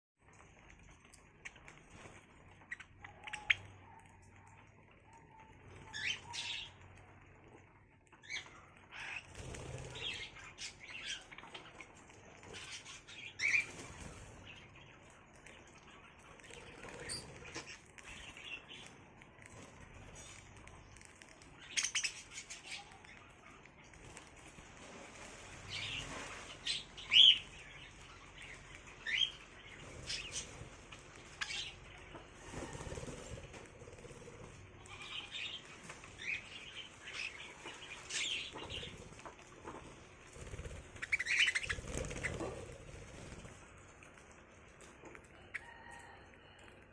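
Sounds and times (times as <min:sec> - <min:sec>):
small birds chirping: 0:00.2 - 0:46.9
wing-flapping and rustling: 0:09.2 - 0:10.3, 0:29.6 - 0:34.8, 0:37.6 - 0:46.0.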